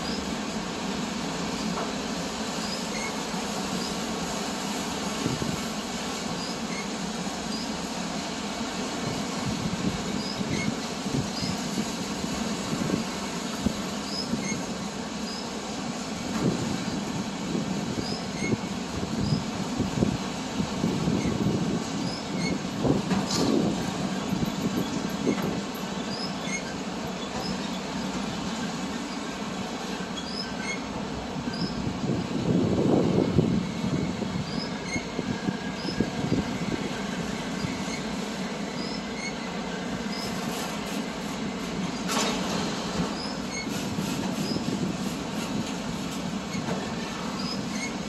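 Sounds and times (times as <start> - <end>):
freight train rumbling past: 0.0 - 48.0
train cars clanking: 0.0 - 48.0
high wheel squeals: 14.0 - 14.7, 18.0 - 19.5, 21.1 - 22.6, 24.7 - 28.0, 30.1 - 31.9, 33.7 - 36.7, 37.5 - 40.6, 43.1 - 44.8, 46.4 - 48.0.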